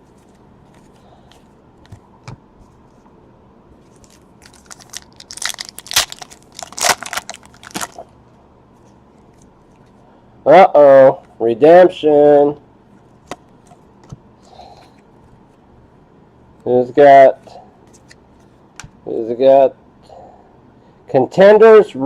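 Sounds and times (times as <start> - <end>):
foil wrapper crinkling and tearing: 3.9 - 8.1.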